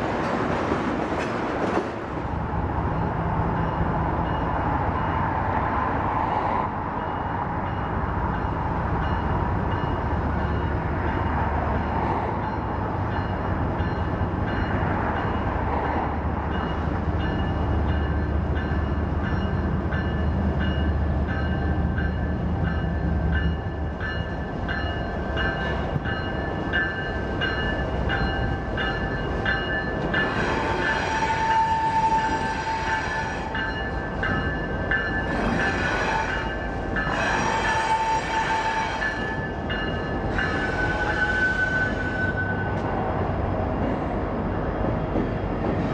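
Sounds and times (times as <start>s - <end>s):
locomotive engines rumbling: 0.0s - 45.9s
train wheels squealing: 35.0s - 42.8s.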